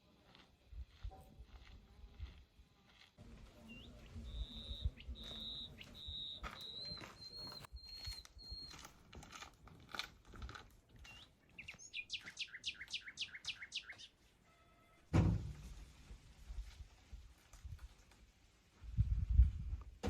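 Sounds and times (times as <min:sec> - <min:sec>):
bird chirping: 0:03.6 - 0:08.9, 0:11.0 - 0:14.9
loud thud: 0:15.1 - 0:15.8.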